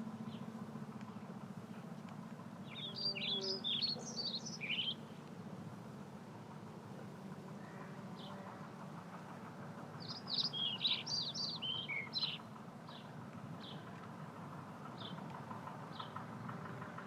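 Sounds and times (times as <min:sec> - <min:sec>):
bird chirping: 0:02.7 - 0:05.1, 0:10.0 - 0:13.8.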